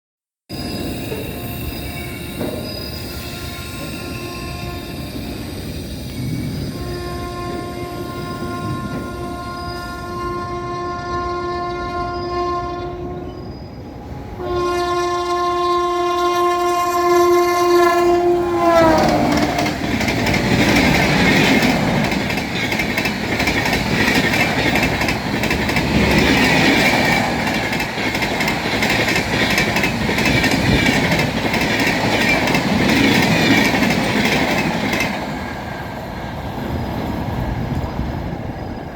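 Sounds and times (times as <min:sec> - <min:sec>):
train coaches rushing past: 0:00.5 - 0:38.9
wheels clacking on rail joints: 0:02.2 - 0:03.2, 0:15.2 - 0:35.9
locomotive air horn: 0:03.1 - 0:05.1, 0:06.7 - 0:13.4, 0:14.2 - 0:20.0.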